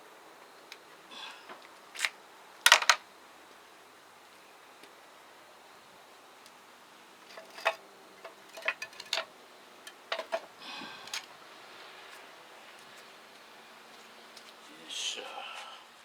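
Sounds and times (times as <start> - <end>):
sharp clicks and knocks: 2.7 - 3.0, 7.3 - 10.5.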